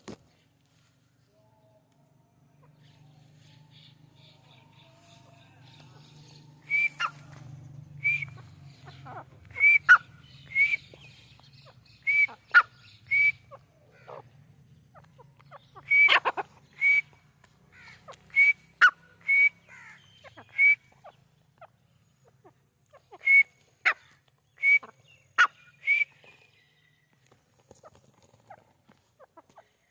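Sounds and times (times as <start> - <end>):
francolin whistled calls: 2.8 - 14.2, 15.5 - 21.2, 23.0 - 26.8.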